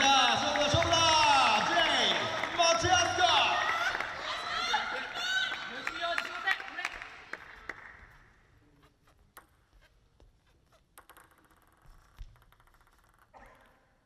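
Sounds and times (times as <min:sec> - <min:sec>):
crowd noise: 0:00.0 - 0:07.6
table tennis ball bouncing: 0:09.0 - 0:13.8.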